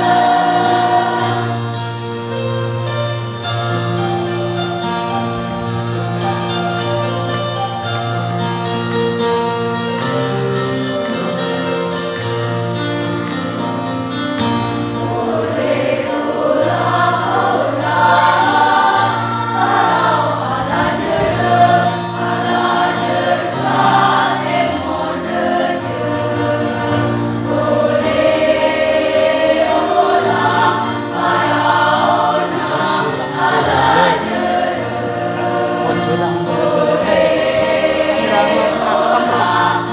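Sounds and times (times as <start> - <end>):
choir singing: 0.0 - 2.6, 14.6 - 39.9.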